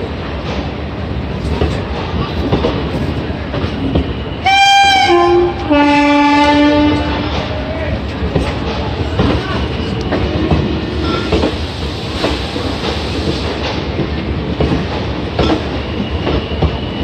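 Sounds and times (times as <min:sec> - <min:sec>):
train wheels clattering: 0:00.3 - 0:17.0
train horn blasts: 0:04.4 - 0:07.3.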